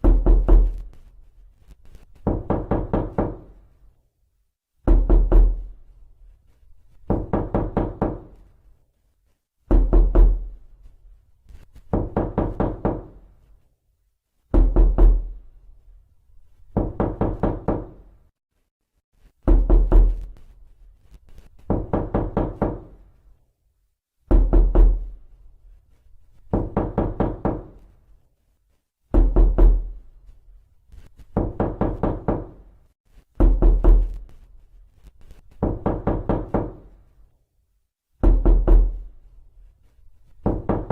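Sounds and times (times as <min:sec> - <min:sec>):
knocking on a door: 0:00.0 - 0:00.8, 0:02.2 - 0:03.6, 0:04.8 - 0:05.7, 0:07.0 - 0:08.4, 0:09.7 - 0:10.5, 0:11.8 - 0:13.2, 0:14.5 - 0:15.4, 0:16.7 - 0:18.0, 0:19.4 - 0:20.3, 0:21.6 - 0:23.0, 0:24.2 - 0:25.2, 0:26.5 - 0:27.8, 0:29.1 - 0:30.0, 0:31.3 - 0:32.6, 0:33.4 - 0:34.2, 0:35.6 - 0:36.9, 0:38.2 - 0:39.1, 0:40.4 - 0:40.9.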